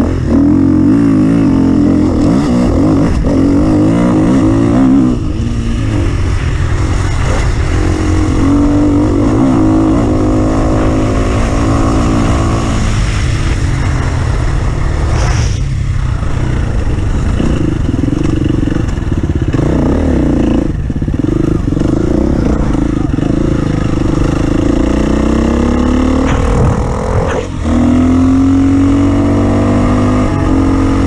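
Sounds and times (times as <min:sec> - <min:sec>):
vehicle engine revving under load: 0:21.5 - 0:31.0.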